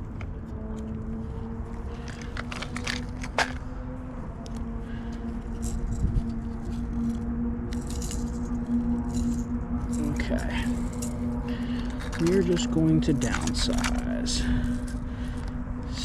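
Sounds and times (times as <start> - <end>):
steady low hum: 0.0 - 16.0
fishing tackle clicking and rattling: 1.9 - 3.6, 5.5 - 15.6.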